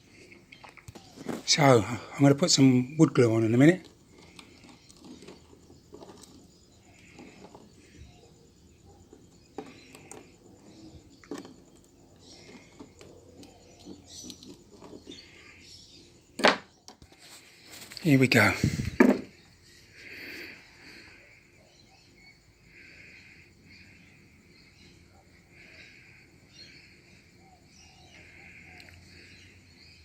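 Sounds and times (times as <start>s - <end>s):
faint taps rustles and scrapes: 3.8s - 8.0s, 11.0s - 15.5s.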